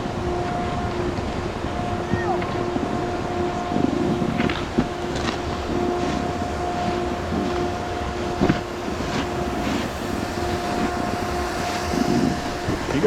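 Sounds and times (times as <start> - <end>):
steady whine: 0.0 - 13.0
wind buffeting microphone: 0.0 - 13.0
snowboards sliding on icy snow: 3.7 - 13.0.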